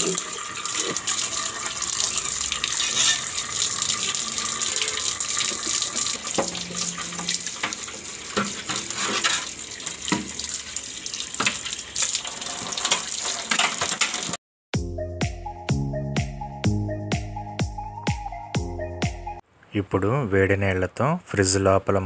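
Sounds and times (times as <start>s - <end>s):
tap water running into sink: 0.0s - 14.4s.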